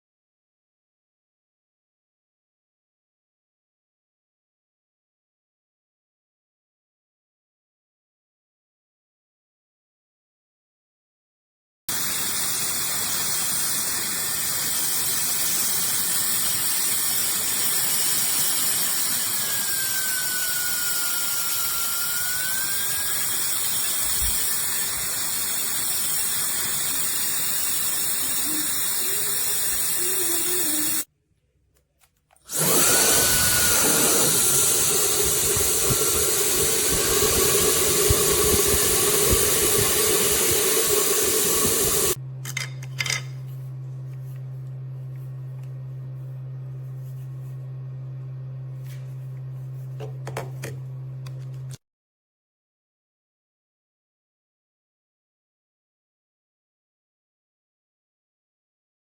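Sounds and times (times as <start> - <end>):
hair dryer blowing: 11.9 - 31.1, 32.5 - 42.2.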